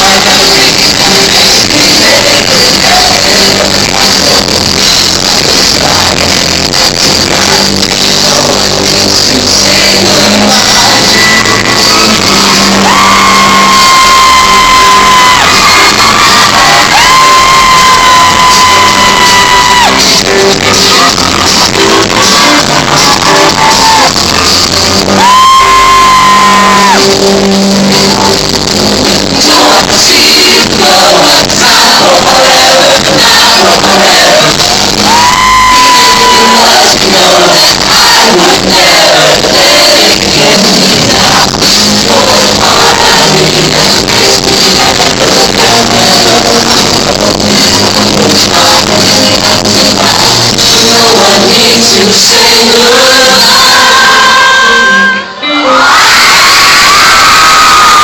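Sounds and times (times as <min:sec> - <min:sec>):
live band and singers: 0:00.0 - 0:58.0
audience shouting along: 0:11.0 - 0:27.6, 0:29.4 - 0:43.7, 0:52.8 - 0:58.0.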